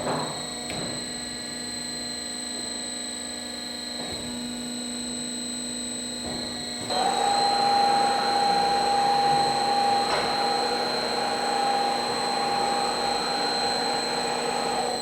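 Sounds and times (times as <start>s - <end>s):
bandsaw whirring with whine: 6.8s - 15.0s.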